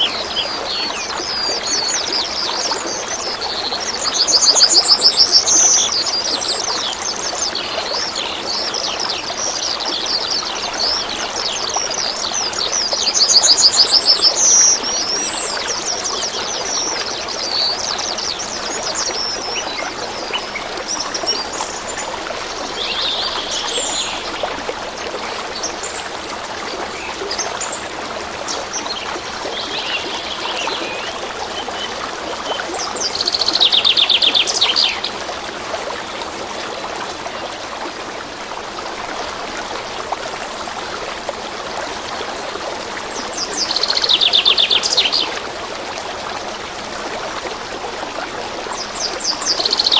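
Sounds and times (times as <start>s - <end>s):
songbirds chirping: 0.0s - 35.4s
stream running: 0.0s - 49.9s.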